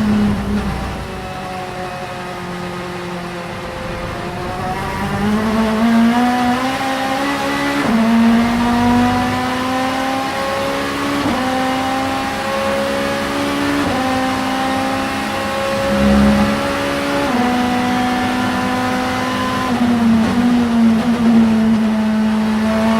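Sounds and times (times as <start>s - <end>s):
race car engine accelerating: 0.0s - 22.9s
gear upshifts: 2.8s - 11.6s, 13.3s - 21.5s.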